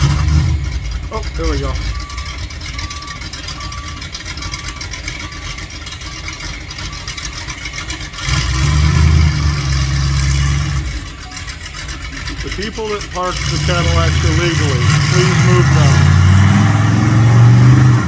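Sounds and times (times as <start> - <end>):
truck engine revving: 0.0 - 18.0
high beeps: 1.2 - 7.2, 11.0 - 11.7.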